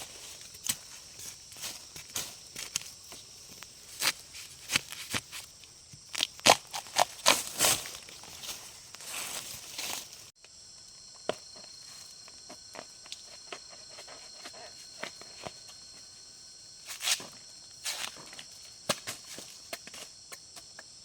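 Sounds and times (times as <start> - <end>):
crunching and rustling: 0.0 - 10.3
high-pitched insect chorus: 0.0 - 21.0.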